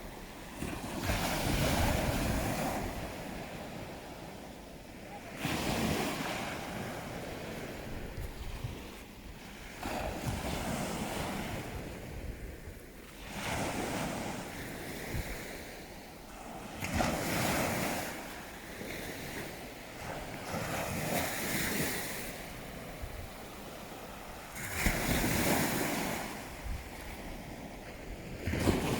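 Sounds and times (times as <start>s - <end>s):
wind rumble on microphone: 0.0s - 4.4s, 5.6s - 13.0s, 24.4s - 28.9s
sea waves washing in: 0.0s - 28.9s.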